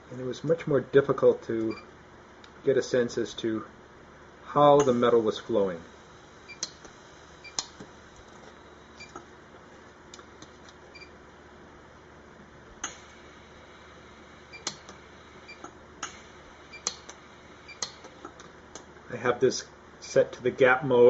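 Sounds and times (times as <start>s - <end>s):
arc welder pulse clicks: 6.5s - 7.9s, 12.8s - 13.2s, 14.6s - 18.9s.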